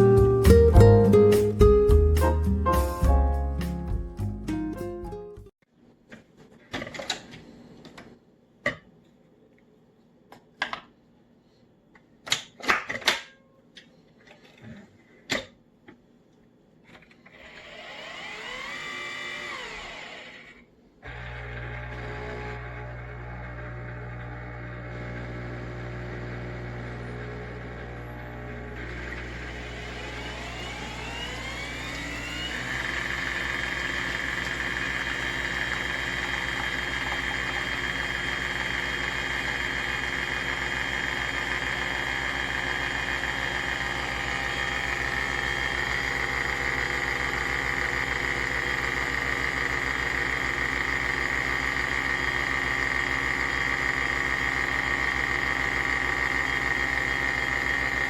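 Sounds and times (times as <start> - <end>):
coffee machine motor whine: 17.3 - 58.0
pump pulsing: 28.6 - 58.0.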